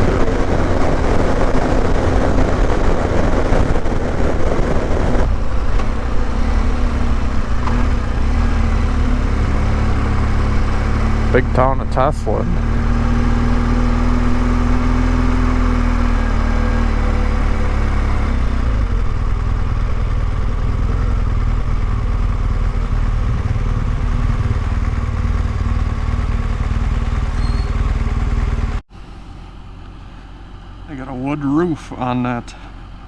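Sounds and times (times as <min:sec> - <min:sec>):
wind noise on microphone: 0:00.0 - 0:10.7
motorcycle engine rumble: 0:00.0 - 0:33.0.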